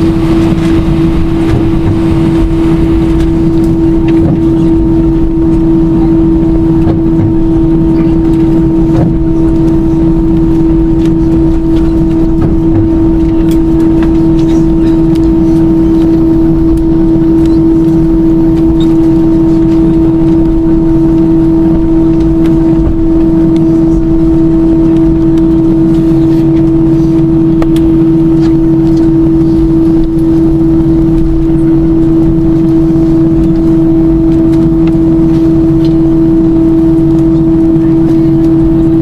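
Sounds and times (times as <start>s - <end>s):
jet engine cabin rushing and hum: 0.0s - 39.0s.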